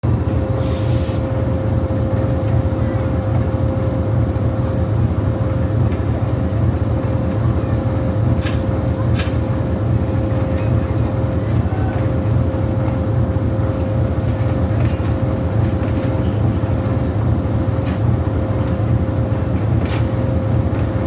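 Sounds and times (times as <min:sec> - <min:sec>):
constant whine: 0:00.0 - 0:21.0
diesel locomotive engine drone: 0:00.0 - 0:21.0
short hisses: 0:00.6 - 0:01.2.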